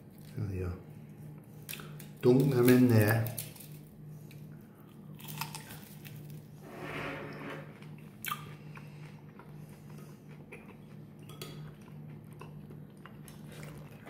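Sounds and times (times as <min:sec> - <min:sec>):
faint low hum: 0:00.0 - 0:14.0
person chewing: 0:04.3 - 0:06.4, 0:07.8 - 0:14.0.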